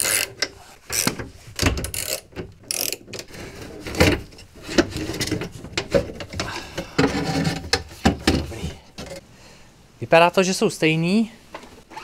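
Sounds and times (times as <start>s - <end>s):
ratchet wrench clicking: 0.0s - 0.3s, 1.9s - 3.0s.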